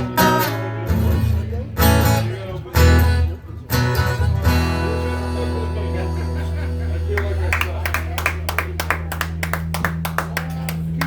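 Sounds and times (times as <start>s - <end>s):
acoustic guitar strumming chords: 0.0s - 7.1s.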